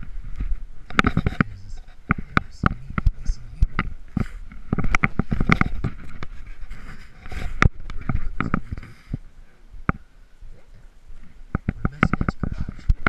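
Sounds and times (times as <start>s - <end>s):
knocks and clicks: 0.9s - 6.3s.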